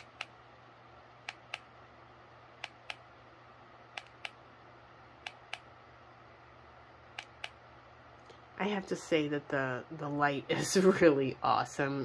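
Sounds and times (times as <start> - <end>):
faint low hum: 0.0 - 12.0
remote control button clicks: 3.9 - 4.4, 7.2 - 7.6.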